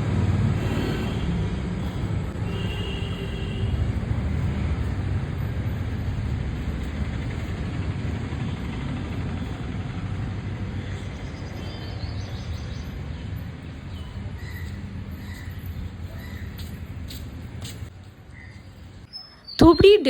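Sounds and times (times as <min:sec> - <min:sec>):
low outdoor rumble: 0:03.6 - 0:11.5.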